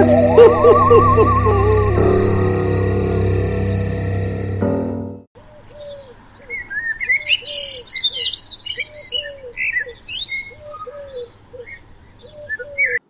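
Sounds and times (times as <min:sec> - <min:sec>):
lower bird call: 0:00.0 - 0:04.4
birds chirping and twittering: 0:05.4 - 0:13.0.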